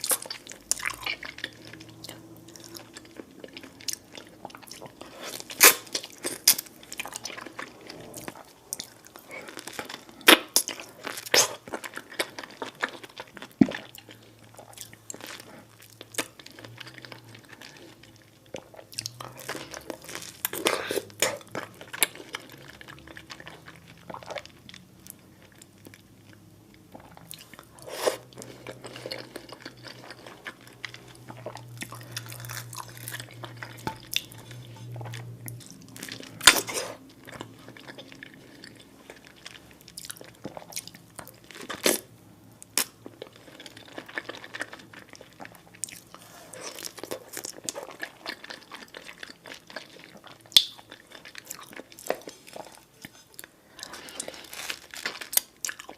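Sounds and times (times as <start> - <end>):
person chewing food: 0.0 - 55.9.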